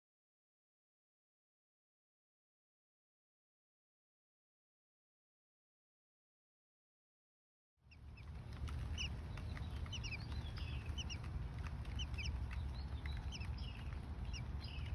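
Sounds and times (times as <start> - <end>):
small birds chirping: 7.9 - 14.9
steady low rumble: 7.9 - 14.9.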